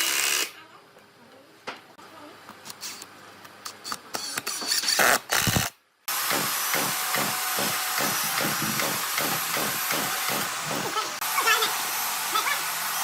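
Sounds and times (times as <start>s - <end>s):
power tool running with pulsing: 6.1s - 13.0s.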